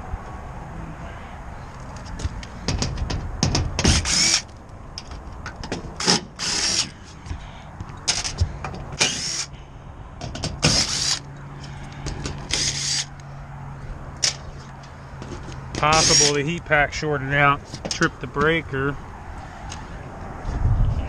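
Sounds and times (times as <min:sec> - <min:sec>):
power drill whining: 0:01.7 - 0:09.6, 0:10.2 - 0:13.3, 0:14.1 - 0:16.6.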